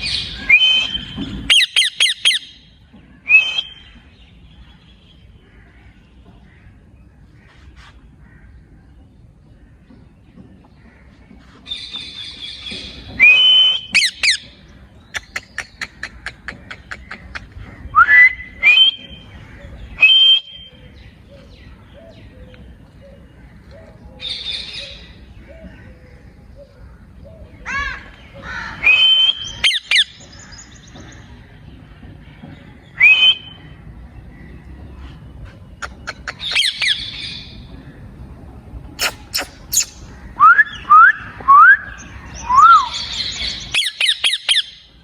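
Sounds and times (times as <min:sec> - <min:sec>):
parakeet whistled calls and screeches: 0:00.5 - 0:02.6, 0:13.2 - 0:14.4, 0:39.0 - 0:40.1.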